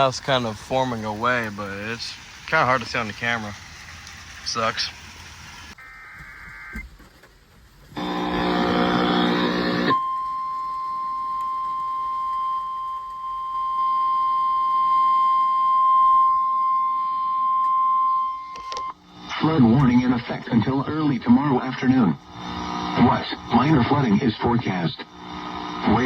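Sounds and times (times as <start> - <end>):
harsh alert buzzing: 8.0 - 12.1, 12.7 - 26.0.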